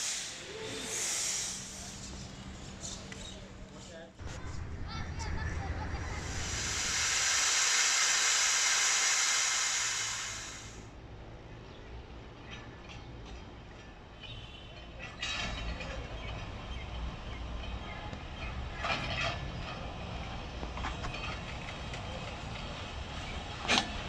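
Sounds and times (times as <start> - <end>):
loud hiss: 0.0 - 2.2, 6.0 - 10.9
train rumbling: 0.0 - 3.6, 4.2 - 10.9, 15.0 - 24.0.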